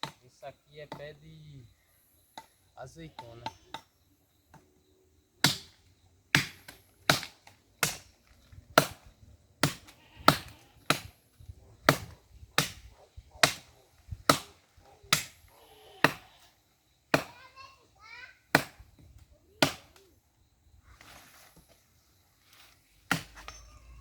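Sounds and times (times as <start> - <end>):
blade chopping wood: 5.4 - 8.1, 8.8 - 11.2, 11.9 - 13.7, 14.3 - 15.4, 17.1 - 17.4, 18.5 - 18.8, 19.6 - 20.0, 23.1 - 23.6.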